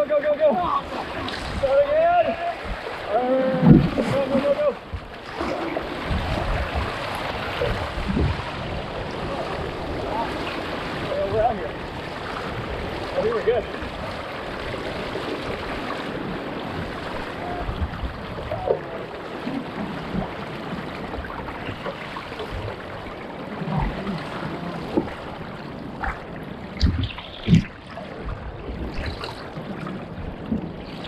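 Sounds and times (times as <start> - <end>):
surf rushing: 0.0 - 31.0
wind buffeting microphone: 0.6 - 31.0
sharp thumps: 26.8 - 27.8.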